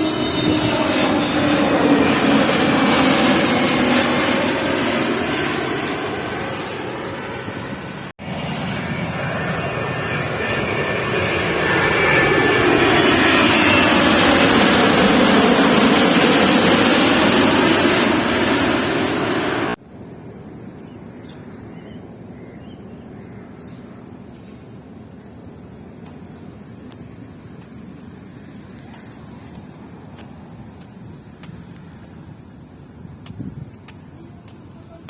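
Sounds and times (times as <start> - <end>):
airliner flying overhead: 0.0 - 35.0.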